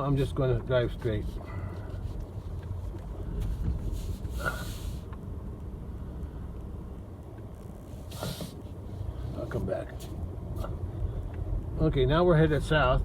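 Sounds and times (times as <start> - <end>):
vehicle rumbling on rough track: 0.0 - 13.0
brief hiss: 3.8 - 5.2, 8.0 - 8.7.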